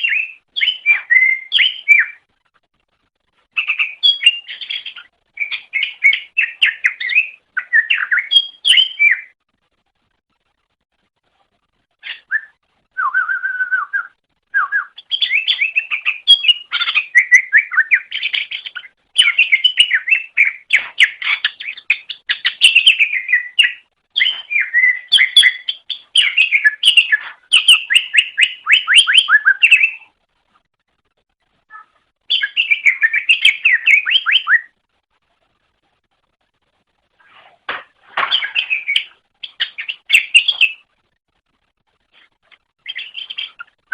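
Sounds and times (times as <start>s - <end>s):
bird singing chattering song: 0.0s - 2.3s, 3.5s - 9.4s, 12.0s - 30.1s, 31.7s - 34.8s, 38.2s - 40.9s, 42.8s - 43.8s.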